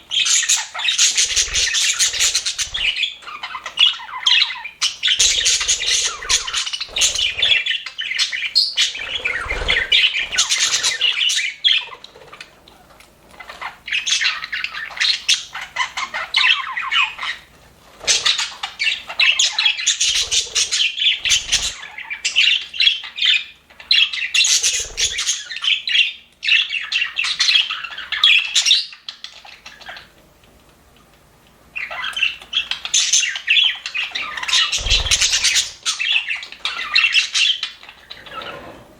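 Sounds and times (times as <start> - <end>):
budgerigars chattering and squawking: 0.0 - 30.2, 31.8 - 38.7.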